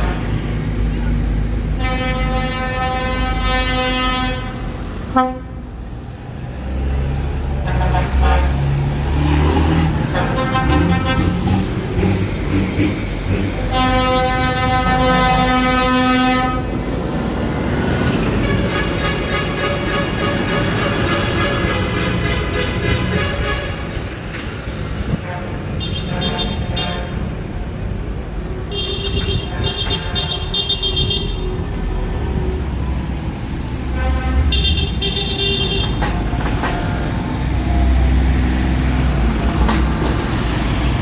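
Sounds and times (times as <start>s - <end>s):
vehicle horns: 1.6s - 5.7s, 7.6s - 9.2s, 9.8s - 12.1s, 13.3s - 16.8s, 18.0s - 24.4s, 25.0s - 27.5s, 28.6s - 31.7s, 33.9s - 37.7s.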